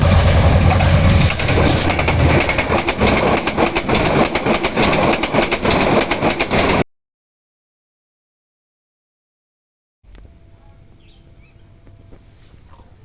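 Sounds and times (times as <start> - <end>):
train passing at speed: 0.0 - 6.8
wheels clacking over rail joints: 0.0 - 6.8.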